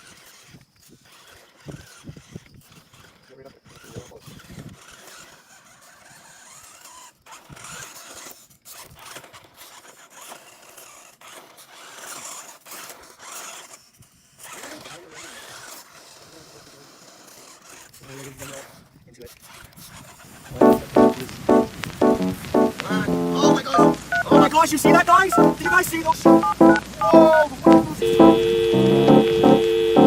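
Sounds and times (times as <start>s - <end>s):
toy truck scraping over ground: 0.0s - 18.8s.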